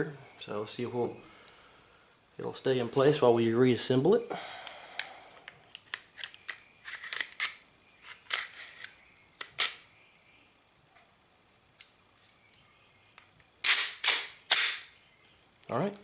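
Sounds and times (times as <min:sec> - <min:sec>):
sharp clicks of pistol parts: 0:04.6 - 0:09.8, 0:13.2 - 0:15.0
pistol slide scraping: 0:06.2 - 0:09.8, 0:13.6 - 0:15.0.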